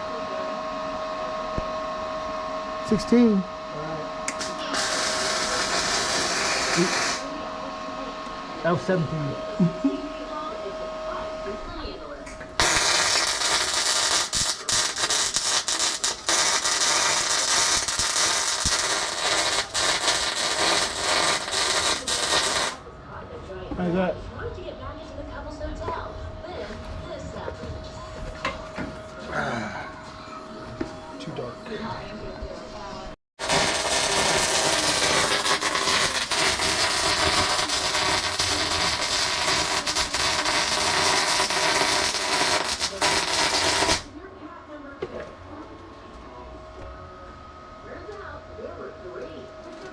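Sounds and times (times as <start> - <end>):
welder arc crackling and sizzling: 2.8 - 3.5, 4.2 - 7.4, 12.4 - 22.8, 33.4 - 44.1.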